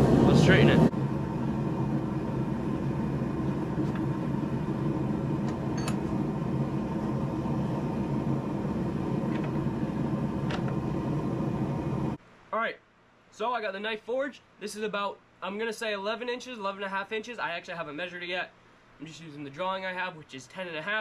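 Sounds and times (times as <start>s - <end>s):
forge roaring: 0.0s - 12.2s
low hum: 0.0s - 12.2s.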